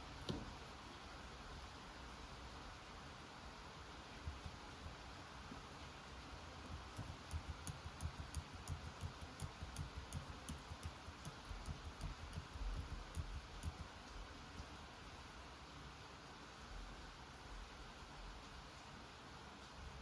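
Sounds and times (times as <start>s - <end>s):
keyboard typing clicks: 6.6s - 13.9s.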